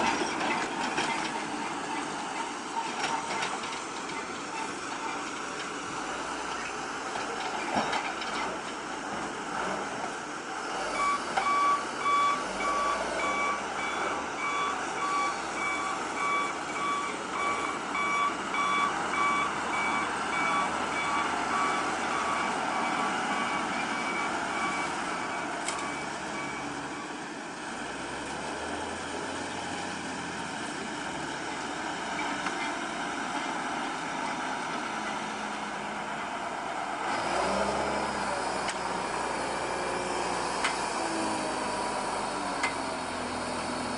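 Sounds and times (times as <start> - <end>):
reversing alarm beeping: 10.9 - 26.8.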